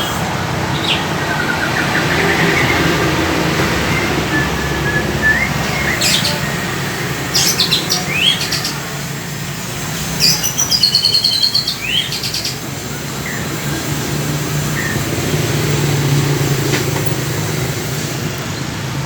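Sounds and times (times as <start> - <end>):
bird singing whistled phrases: 3.9 - 8.8, 10.2 - 12.6.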